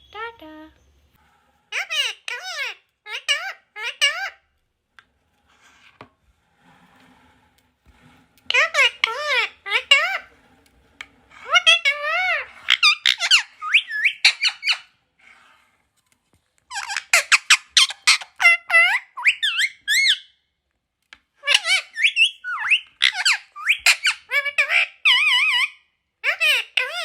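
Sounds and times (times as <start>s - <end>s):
parrot squeaking and chirping: 1.7s - 4.4s, 8.5s - 10.4s, 11.3s - 15.0s, 16.7s - 20.4s, 21.4s - 27.0s.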